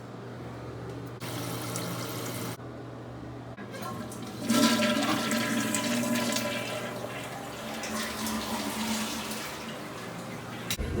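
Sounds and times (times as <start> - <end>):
toilet flushing: 1.2 - 2.6, 3.6 - 11.0.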